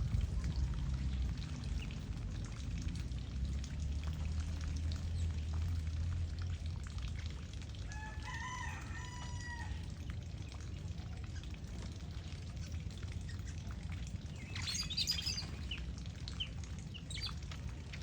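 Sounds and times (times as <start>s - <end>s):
low steady rumble: 0.0s - 18.0s
rooster crowing: 7.9s - 9.8s
water splashing: 11.6s - 18.0s.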